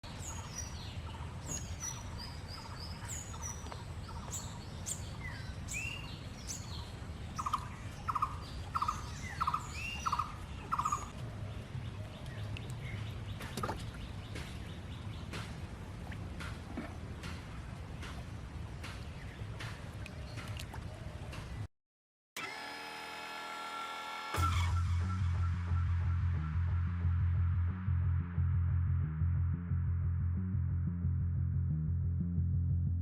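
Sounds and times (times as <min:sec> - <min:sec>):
birds chirping: 0:00.0 - 0:21.7
steady low rumble: 0:00.1 - 0:20.7, 0:24.7 - 0:33.0.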